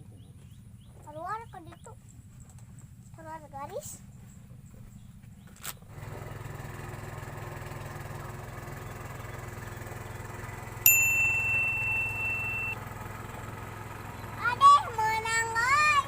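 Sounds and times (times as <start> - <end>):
low engine hum: 0.0 - 16.0
loud bright ding: 10.9 - 12.8.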